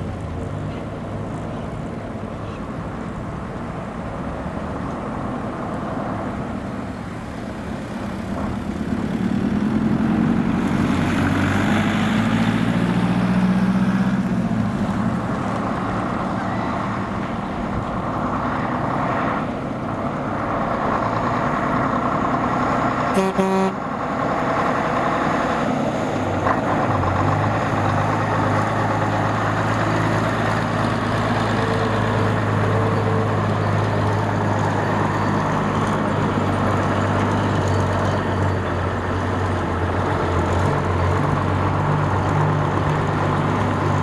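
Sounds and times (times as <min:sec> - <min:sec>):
truck engine running: 0:00.0 - 0:44.0.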